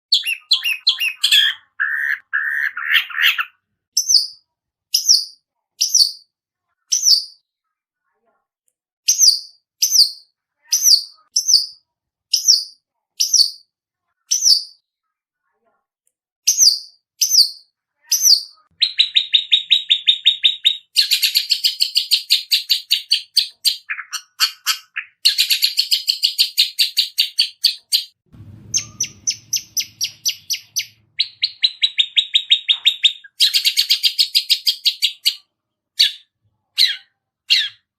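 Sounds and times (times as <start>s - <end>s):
fast chattering bird trills: 0.1s - 3.5s, 28.7s - 35.4s
sharp high bird chirps: 0.1s - 6.3s, 6.9s - 7.4s, 9.1s - 13.7s, 14.3s - 14.8s, 16.5s - 37.9s
shrike chattering calls: 28.4s - 33.4s.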